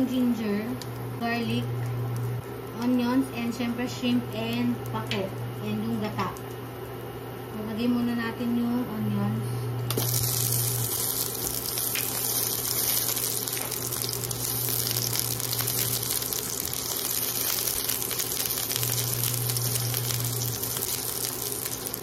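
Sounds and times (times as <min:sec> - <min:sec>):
low cooktop hum: 0:00.0 - 0:22.0
onions sizzling in hot oil: 0:09.9 - 0:22.0.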